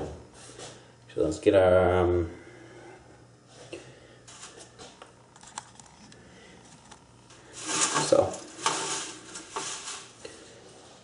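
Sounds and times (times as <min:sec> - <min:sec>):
metal clattering and scraping: 0:07.5 - 0:10.1.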